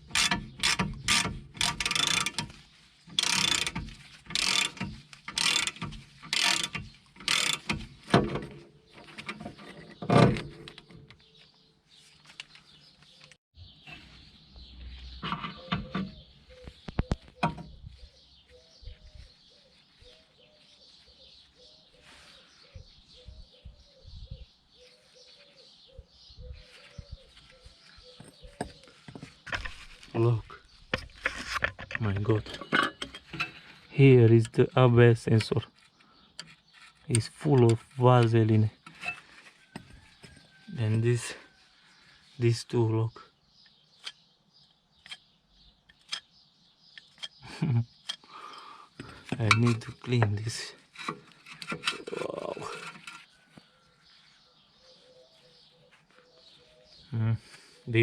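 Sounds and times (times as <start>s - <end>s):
ratchet wrench clicking: 0.1s - 2.5s, 3.1s - 7.8s.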